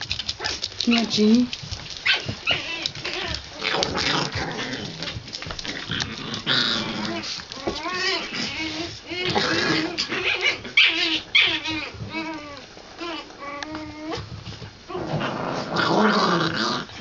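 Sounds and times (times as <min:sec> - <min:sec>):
puppies whimpering and yipping: 0:00.1 - 0:05.5, 0:07.0 - 0:14.3.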